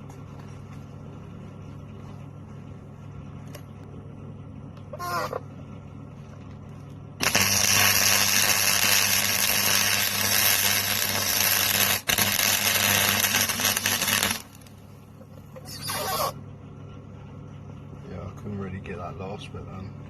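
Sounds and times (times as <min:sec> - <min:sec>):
welder arc crackling and hissing: 0:04.8 - 0:16.4.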